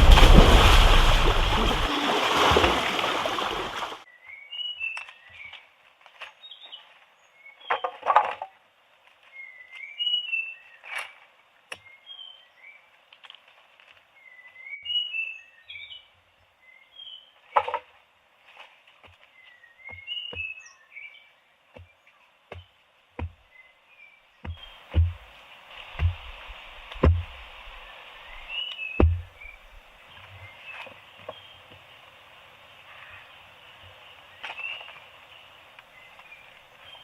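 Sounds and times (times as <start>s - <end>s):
low thumps: 0.0s - 1.9s, 24.5s - 25.3s, 26.0s - 29.9s
birds chirping: 19.3s - 31.7s.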